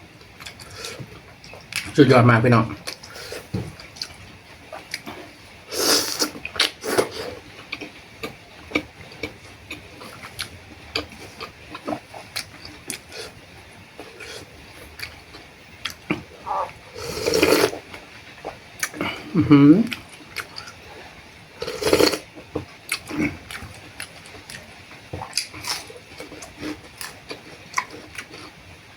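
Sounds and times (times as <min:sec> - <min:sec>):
person slurping noodles: 0:05.7 - 0:07.4, 0:16.1 - 0:17.8, 0:21.6 - 0:22.2
chewing: 0:06.1 - 0:13.4, 0:21.6 - 0:28.6.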